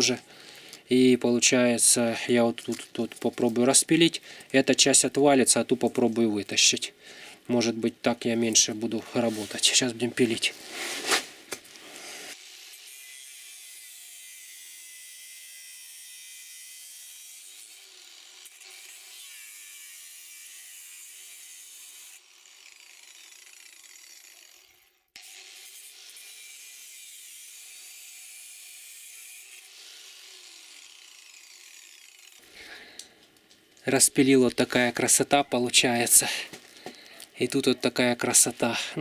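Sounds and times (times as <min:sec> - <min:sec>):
faint sawing through metal: 0:08.8 - 0:12.4.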